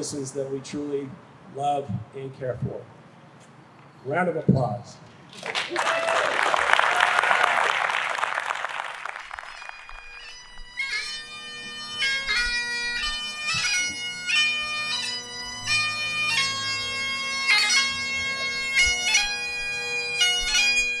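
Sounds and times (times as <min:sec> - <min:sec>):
bagpipes playing a melody: 0:09.2 - 0:21.0.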